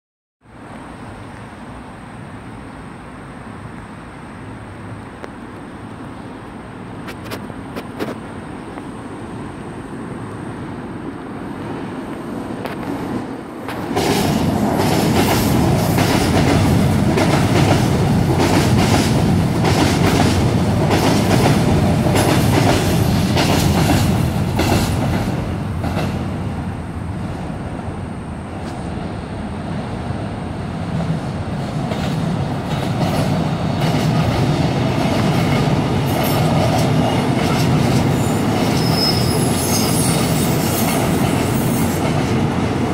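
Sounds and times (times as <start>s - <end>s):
high wheel squeal: 38.1s - 42.0s.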